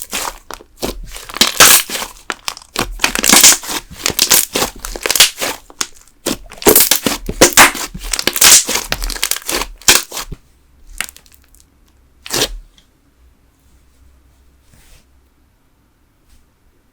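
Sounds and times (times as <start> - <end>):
slime crackling and popping: 0.0 - 11.6, 12.2 - 12.6.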